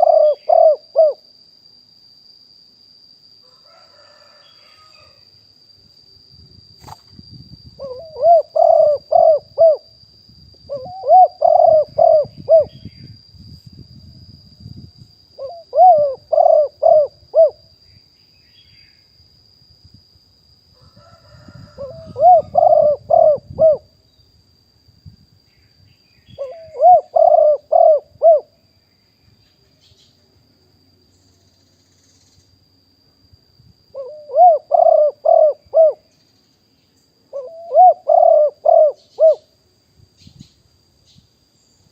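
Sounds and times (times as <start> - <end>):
dove cooing: 0.0 - 1.2, 7.8 - 9.9, 10.7 - 12.8, 15.4 - 17.6, 21.4 - 23.9, 26.4 - 28.6, 34.0 - 36.1, 37.3 - 39.5.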